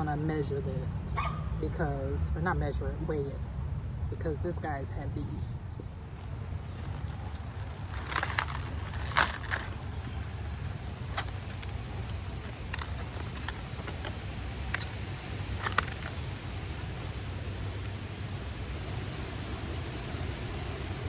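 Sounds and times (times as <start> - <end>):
snapping plants: 6.1 - 18.0.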